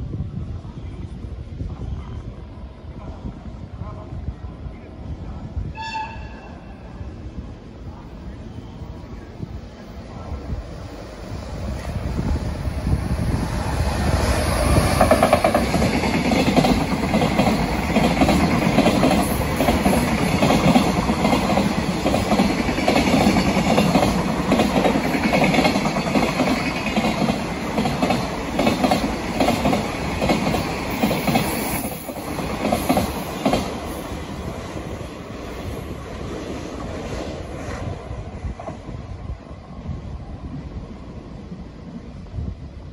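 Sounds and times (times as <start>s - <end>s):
freight train wagons clattering: 15.0s - 33.8s.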